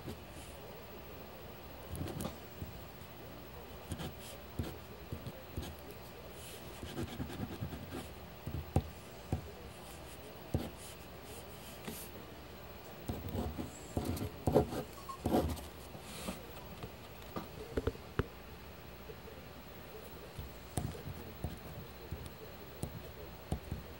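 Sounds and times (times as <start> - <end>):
pencil scratching on paper: 6.4 - 8.6, 13.1 - 16.4.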